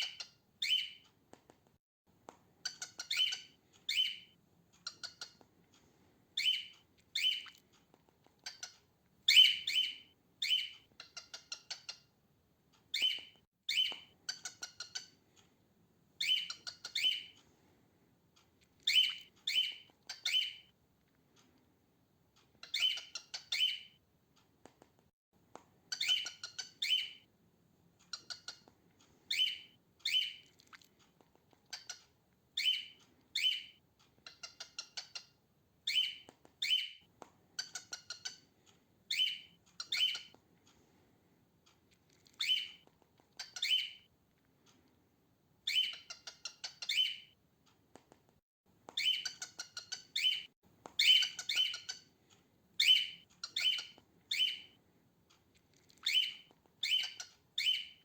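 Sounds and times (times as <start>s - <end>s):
faint bird chirps: 0.0s - 1.1s, 2.6s - 5.4s, 6.4s - 7.7s, 8.4s - 12.1s, 12.9s - 15.2s, 16.2s - 17.4s, 18.8s - 20.8s, 22.6s - 24.0s, 25.9s - 27.3s, 29.2s - 30.6s, 31.7s - 38.5s, 39.1s - 40.4s, 42.2s - 42.8s, 43.4s - 44.1s, 45.6s - 47.4s, 49.0s - 52.1s, 52.8s - 54.8s, 55.7s - 58.0s
cockatiel squawking calls: 43.4s - 44.0s.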